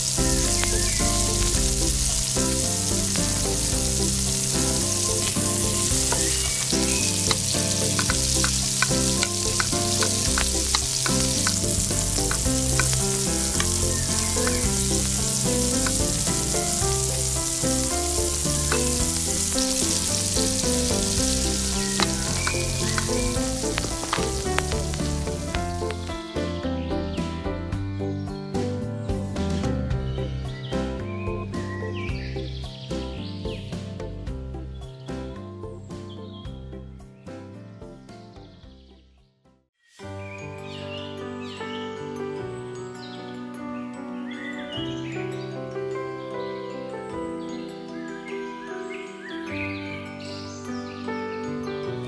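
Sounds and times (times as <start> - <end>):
spices sizzling in a pot: 0.0 - 26.1.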